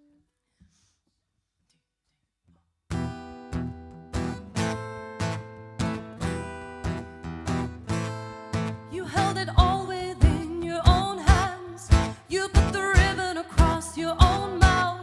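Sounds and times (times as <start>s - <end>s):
acoustic guitar strumming chords: 2.9s - 15.0s.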